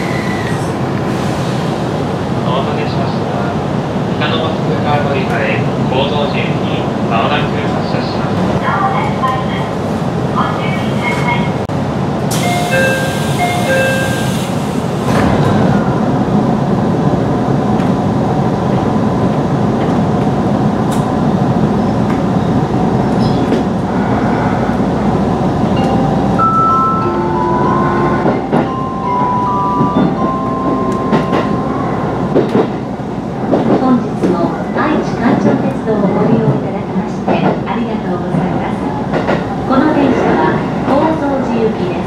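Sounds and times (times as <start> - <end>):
train door chime: 12.3 - 14.6, 25.7 - 31.8
train doors shutting with knock: 12.3 - 16.0, 28.1 - 31.6.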